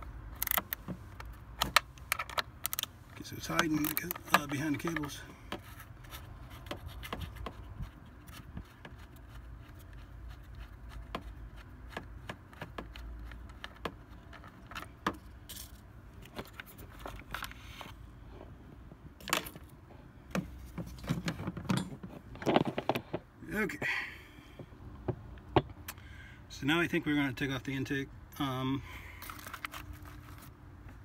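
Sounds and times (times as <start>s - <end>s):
clatter of metal parts: 14.3s - 17.6s, 29.1s - 30.5s.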